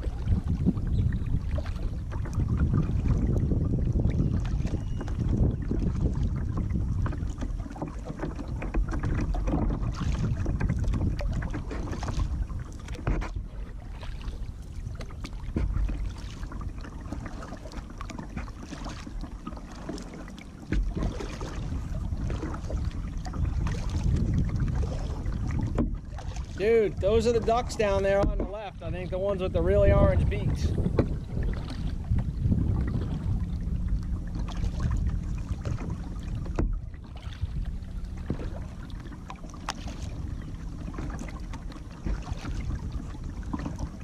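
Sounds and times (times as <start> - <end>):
wind buffeting microphone: 0.0 - 19.0, 20.6 - 44.0
paddle splashing in water: 0.0 - 44.0.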